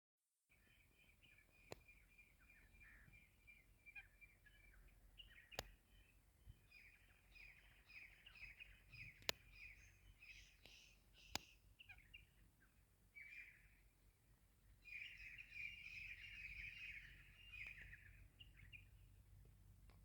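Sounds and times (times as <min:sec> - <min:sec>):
birds chirping: 0:00.5 - 0:13.9, 0:14.7 - 0:19.2
sharp clicks: 0:09.0 - 0:09.8.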